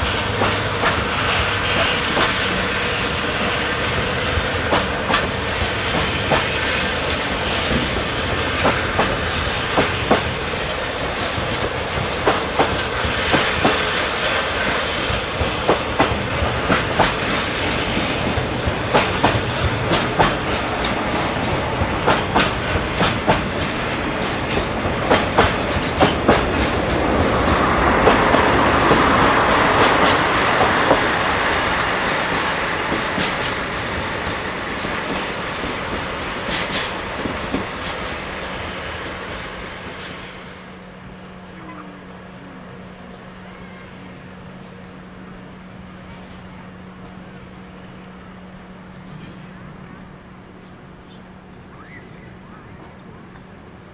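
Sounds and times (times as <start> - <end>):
train wheels clicking over rail joints: 0.0 - 40.9
train running noise: 0.0 - 53.9.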